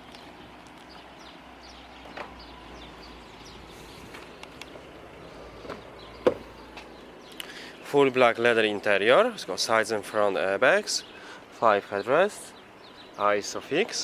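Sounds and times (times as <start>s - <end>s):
sharp thump: 5.7s - 6.5s.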